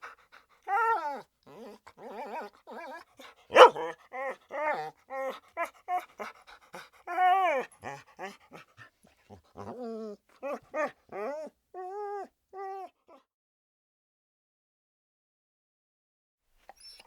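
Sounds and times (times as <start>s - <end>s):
dog yelping: 0.7s - 6.0s, 7.1s - 8.4s, 9.6s - 12.9s
dog whining and whimpering: 0.7s - 6.3s, 7.1s - 8.4s, 9.6s - 13.0s, 16.8s - 17.0s.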